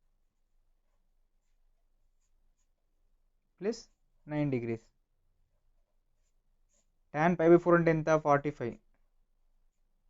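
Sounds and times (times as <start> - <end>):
faint pen writing ticks: 0.8 - 3.0, 5.8 - 7.1.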